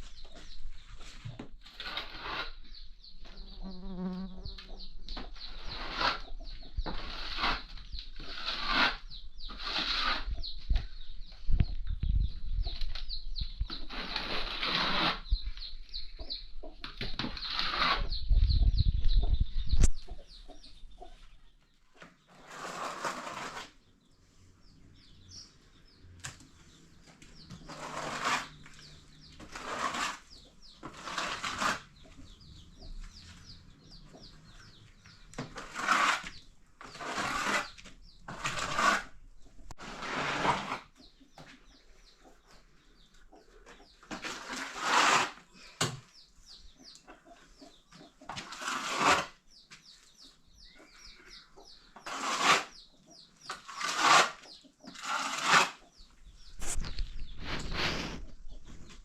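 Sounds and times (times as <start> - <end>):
small birds chirping: 0.0 - 40.0, 40.7 - 59.0
chickens clucking: 4.3 - 7.0, 15.2 - 22.4, 31.6 - 35.6, 40.8 - 44.4, 45.6 - 48.5, 49.5 - 52.1, 55.7 - 59.0
wind rumble on microphone: 10.3 - 13.8, 18.0 - 20.4.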